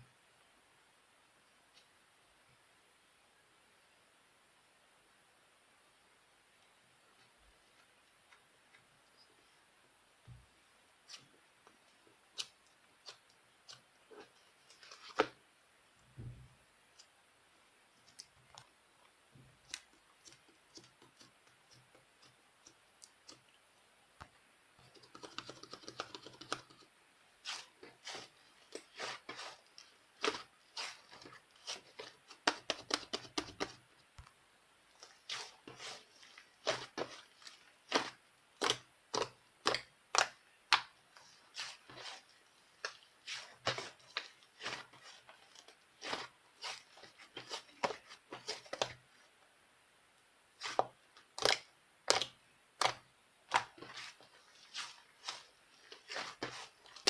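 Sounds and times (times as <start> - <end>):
scratchy rustling: 27.4 - 32.6, 35.0 - 38.2, 41.2 - 48.9, 53.6 - 57.0.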